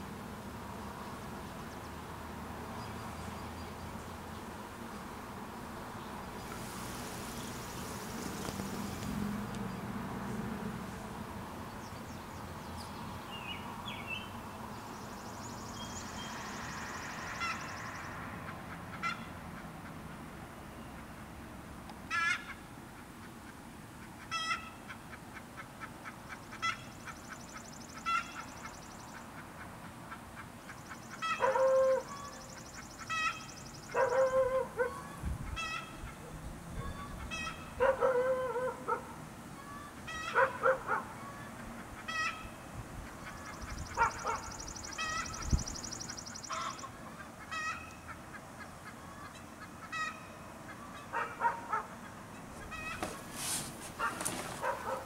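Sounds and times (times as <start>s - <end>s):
birds calling: 5.9s - 11.0s, 11.6s - 20.0s, 24.0s - 55.0s
louder lower bird calls: 15.3s - 18.2s, 26.5s - 29.2s, 30.7s - 38.8s, 39.6s - 55.0s.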